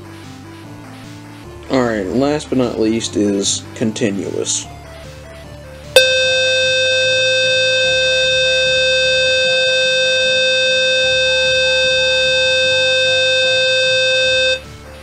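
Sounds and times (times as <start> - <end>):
faint background music: 0.0 - 15.0
buzzy alarm horn tone: 6.0 - 15.0.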